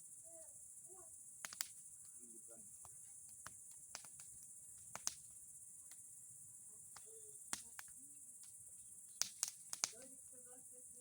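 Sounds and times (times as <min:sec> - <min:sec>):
steady high-pitched hiss: 0:00.0 - 0:11.0
bonfire crackling: 0:01.0 - 0:11.0
sharp pops from fire: 0:01.4 - 0:02.2, 0:02.8 - 0:06.1, 0:06.9 - 0:10.2.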